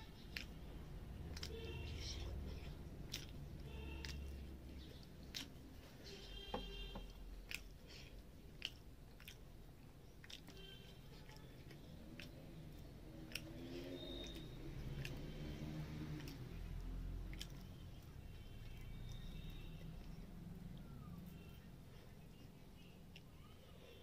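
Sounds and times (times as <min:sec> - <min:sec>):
sharp mouth clicks: 0:00.0 - 0:05.8, 0:07.1 - 0:18.1
close-up chewing food: 0:00.0 - 0:24.0.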